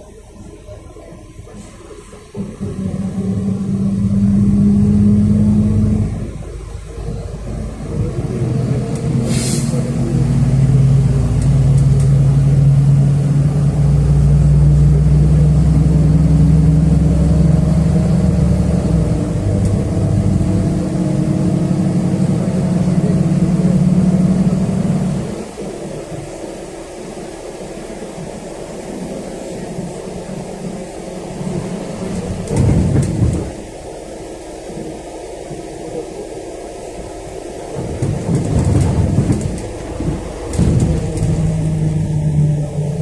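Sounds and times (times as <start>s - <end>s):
bus engine accelerating: 0.0s - 43.0s
short hiss: 9.3s - 9.9s.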